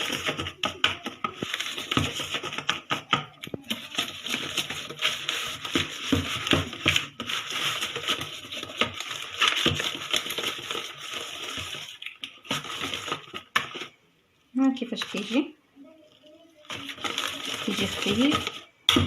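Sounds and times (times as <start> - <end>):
whisk beating batter in bowl: 0.0 - 13.9.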